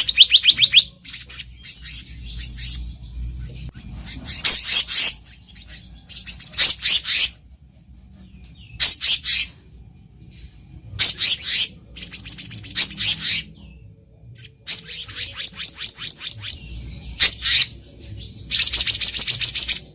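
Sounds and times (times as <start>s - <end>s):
bird chattering calls: 0.0s - 7.4s, 14.4s - 19.9s.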